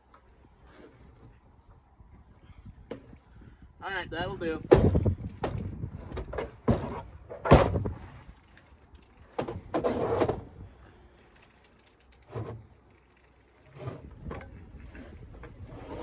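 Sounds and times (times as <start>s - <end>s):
dull thump: 4.6s - 5.7s, 6.6s - 8.0s
sharp knocks and clunks: 4.6s - 8.0s.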